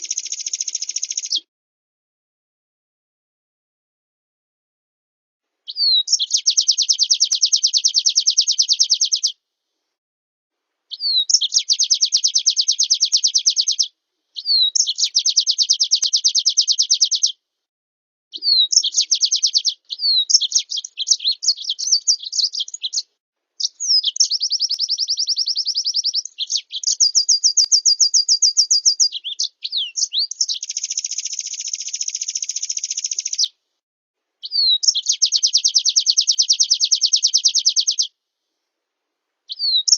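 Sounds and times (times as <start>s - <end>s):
songbird trilling: 0.0s - 1.4s, 5.7s - 9.4s, 10.9s - 17.4s, 18.4s - 33.5s, 34.4s - 38.1s, 39.5s - 39.9s.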